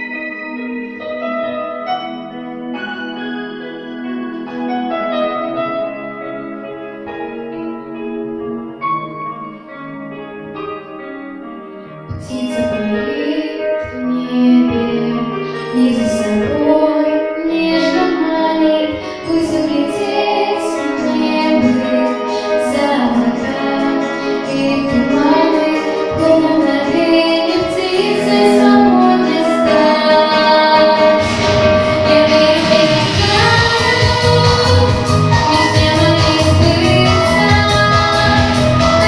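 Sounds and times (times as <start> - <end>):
instrumental accompaniment: 0.0 - 39.0
girl singing pop song: 12.1 - 39.0.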